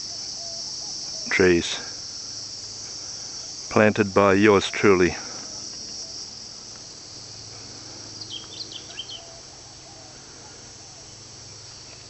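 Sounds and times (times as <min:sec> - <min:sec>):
high-pitched insect drone: 0:00.0 - 0:12.0
quick bird chirps: 0:08.2 - 0:09.3.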